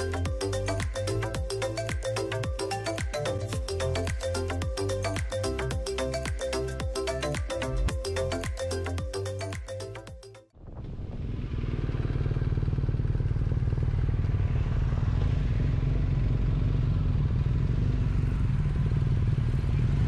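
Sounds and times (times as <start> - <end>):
motorcycle engine running: 11.1 - 20.0.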